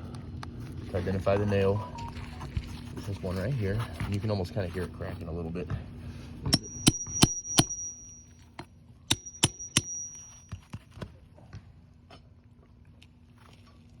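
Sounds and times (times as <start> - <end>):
pry tool clicking on metal nail: 6.6 - 8.1, 9.1 - 10.3
brief high metallic ring: 6.6 - 10.7.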